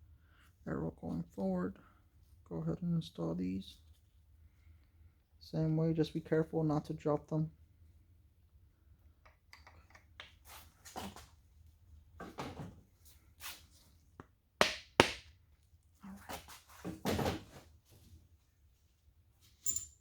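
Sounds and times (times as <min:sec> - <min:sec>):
metal clinks and scrapes: 0:19.5 - 0:20.0.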